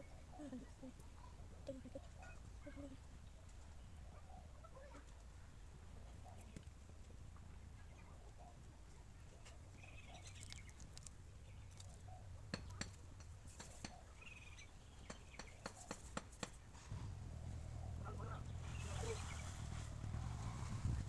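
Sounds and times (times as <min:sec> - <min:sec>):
light clicks and taps: 0:10.3 - 0:14.0
low steady hum: 0:16.8 - 0:21.0.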